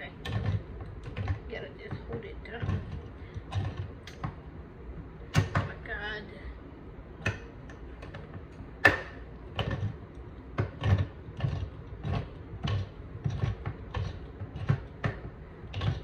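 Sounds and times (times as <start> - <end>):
can opener clicking and clunking: 0.2 - 1.4, 7.2 - 16.0.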